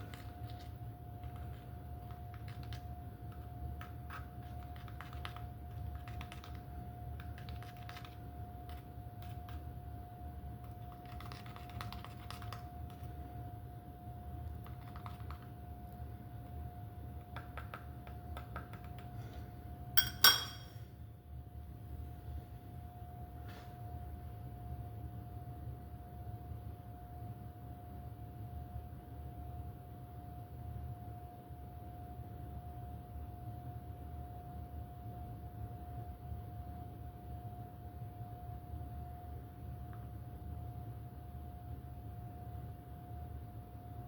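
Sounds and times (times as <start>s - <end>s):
steady hum: 0.0s - 44.0s
sharp ringing clink: 20.0s - 20.8s.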